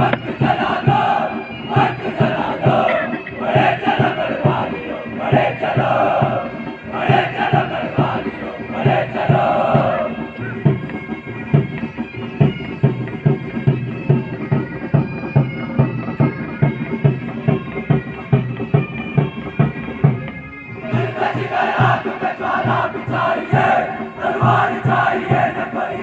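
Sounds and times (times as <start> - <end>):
voices shouting: 0.0 - 10.6, 20.8 - 26.0
bagpipes playing: 0.0 - 26.0
marching drum beat: 0.0 - 26.0.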